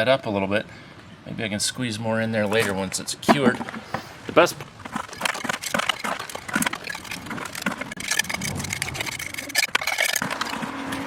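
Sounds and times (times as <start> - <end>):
tool scraping wet concrete: 2.4 - 11.0.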